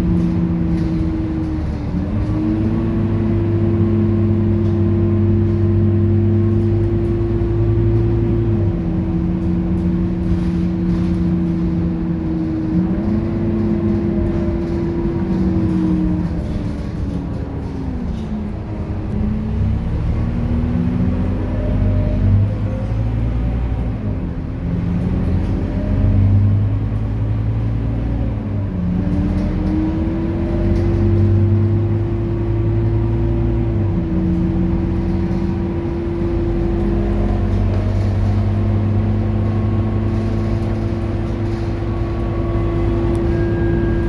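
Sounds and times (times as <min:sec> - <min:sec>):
bus diesel engine droning: 0:00.0 - 0:44.0
steady whine: 0:41.7 - 0:44.0.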